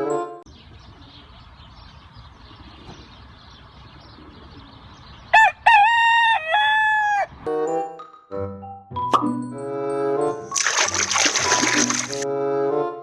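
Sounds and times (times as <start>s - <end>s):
rooster crowing: 5.4s - 7.3s.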